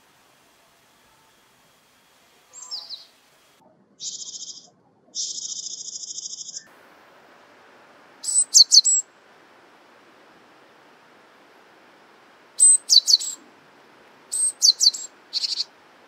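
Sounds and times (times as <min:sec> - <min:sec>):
songbird calling: 0:02.5 - 0:03.2, 0:04.0 - 0:06.8, 0:08.1 - 0:09.2, 0:12.5 - 0:16.0.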